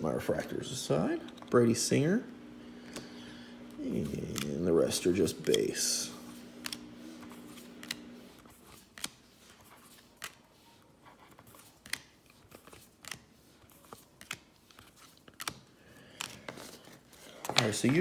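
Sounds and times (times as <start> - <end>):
cards flipping with soft clicks: 4.1 - 10.4, 11.0 - 18.0.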